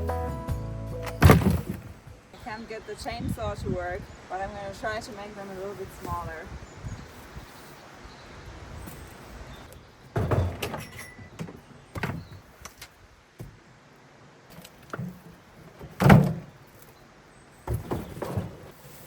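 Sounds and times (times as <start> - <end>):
wooden debris thumps and knocks: 1.0 - 2.2, 9.7 - 13.6, 14.5 - 16.9, 17.6 - 19.0.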